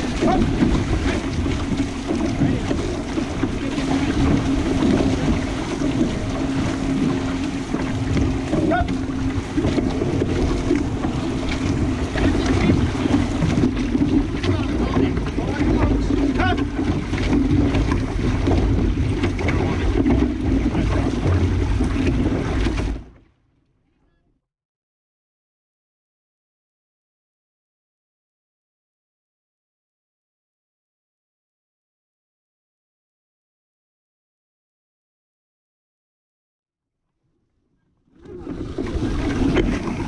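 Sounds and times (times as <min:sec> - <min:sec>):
steady low hum: 0:00.0 - 0:23.1
wind buffeting microphone: 0:00.0 - 0:23.1
water rushing past canoe: 0:00.0 - 0:23.4, 0:38.1 - 0:40.0.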